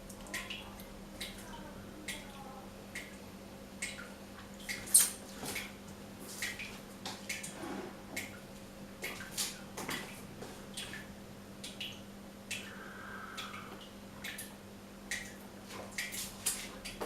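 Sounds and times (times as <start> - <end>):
water drops dripping from tap: 0.0 - 5.8, 10.7 - 12.8, 13.4 - 16.2.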